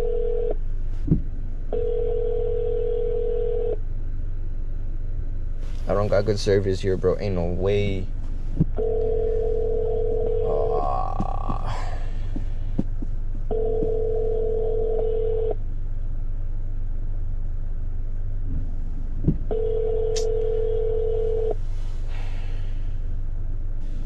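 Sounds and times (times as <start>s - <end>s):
telephone ringback tone: 0.0s - 0.5s, 1.8s - 3.7s, 8.8s - 10.6s, 13.5s - 15.6s, 19.5s - 21.6s
low steady hum: 0.0s - 24.0s.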